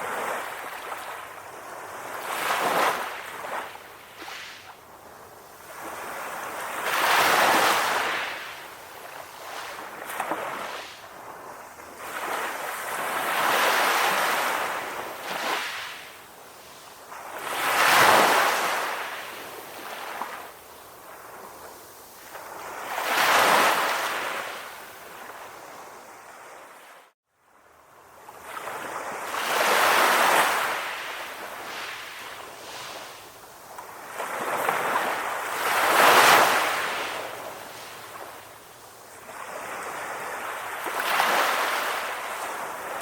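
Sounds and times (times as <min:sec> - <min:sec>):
ocean waves washing in: 0:05.6 - 0:27.2.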